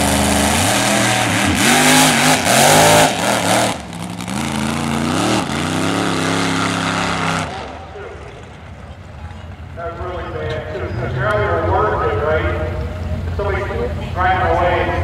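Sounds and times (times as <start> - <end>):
car engine at full throttle: 0.0 - 14.2.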